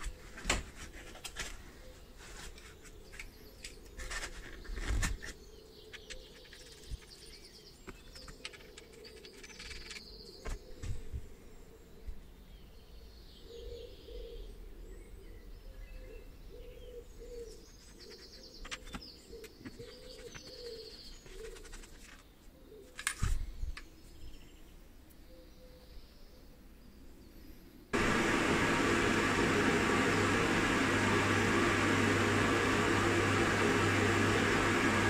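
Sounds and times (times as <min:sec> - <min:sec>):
birds chirping and trilling: 0:01.6 - 0:28.9
knocks and clicks of handling: 0:07.9 - 0:11.0.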